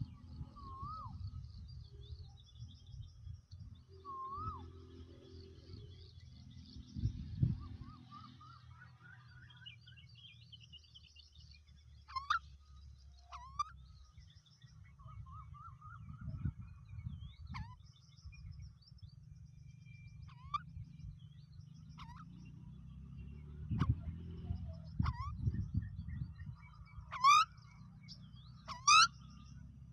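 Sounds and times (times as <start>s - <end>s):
bird whistled calls: 0.2s - 1.6s, 3.9s - 5.0s, 15.0s - 16.6s.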